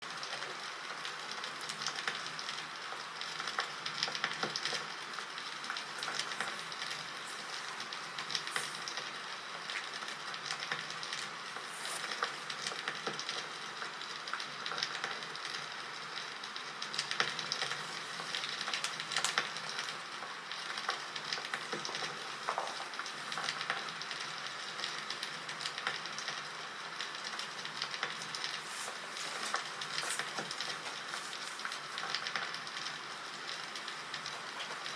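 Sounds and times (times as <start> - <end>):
campfire crackling: 0.2 - 34.9.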